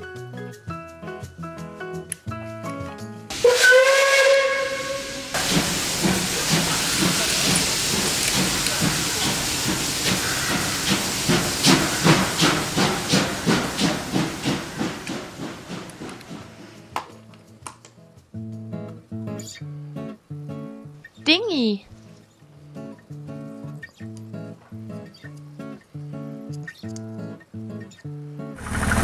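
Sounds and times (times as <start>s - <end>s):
steam locomotive whistle: 3.3s - 9.4s
steam engine chuffing: 4.3s - 16.9s, 28.6s - 29.0s.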